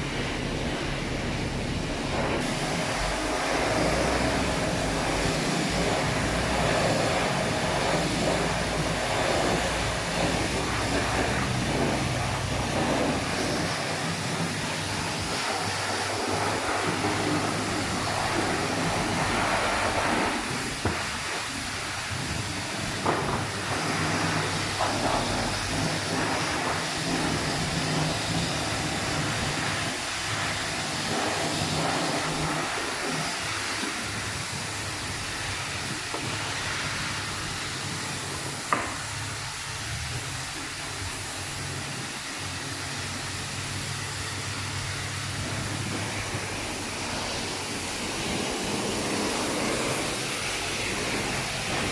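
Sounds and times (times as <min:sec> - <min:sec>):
low machine hum: 0:00.0 - 0:33.1
water spray hissing: 0:02.0 - 0:51.9.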